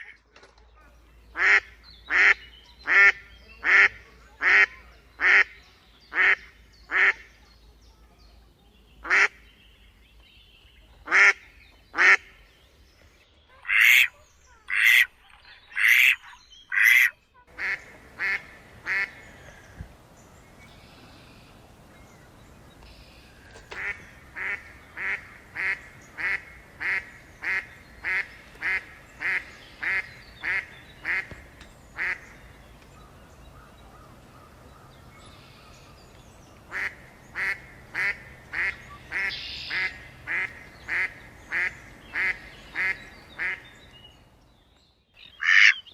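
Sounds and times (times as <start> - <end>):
ducks quacking: 1.3 - 7.4, 9.0 - 9.5, 11.0 - 12.4, 13.5 - 19.8, 23.2 - 32.4, 36.7 - 43.8, 45.4 - 45.9.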